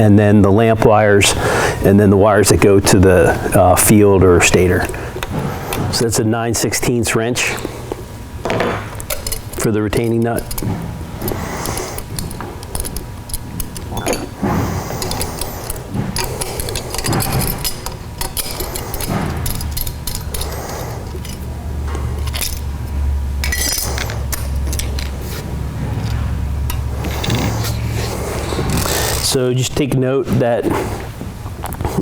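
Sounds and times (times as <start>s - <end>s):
low steady hum: 0.0s - 32.0s
wrench clinking on metal: 9.1s - 10.6s, 23.4s - 25.2s.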